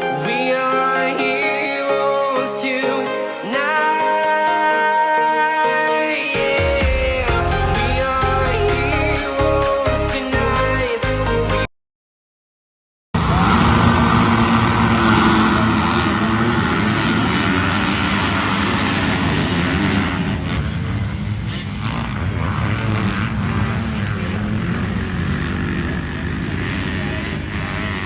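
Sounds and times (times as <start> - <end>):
dirt bike engines running: 13.2 - 28.0.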